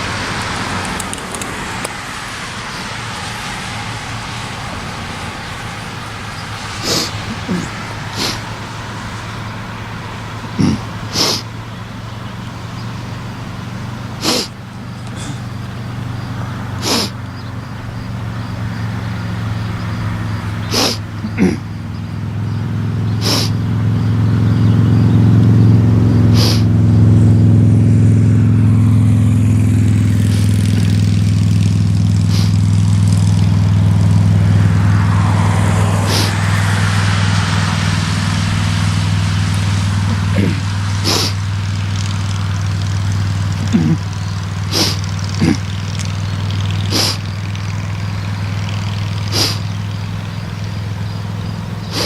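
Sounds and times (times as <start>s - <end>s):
diesel locomotive engine droning: 0.0s - 52.0s
sharp clicks: 0.5s - 2.0s, 44.8s - 47.2s.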